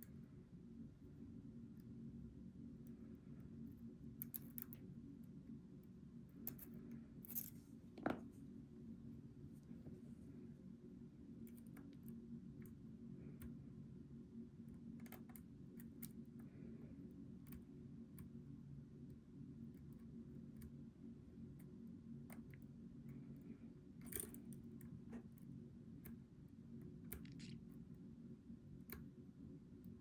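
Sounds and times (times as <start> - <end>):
low steady hum: 0.0 - 30.0
lock pick clicking on pins: 4.2 - 4.8, 6.3 - 7.5, 24.0 - 25.0.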